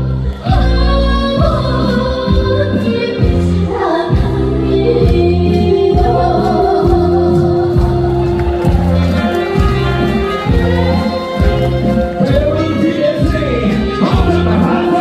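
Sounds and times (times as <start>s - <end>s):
girl singing: 0.4s - 8.2s.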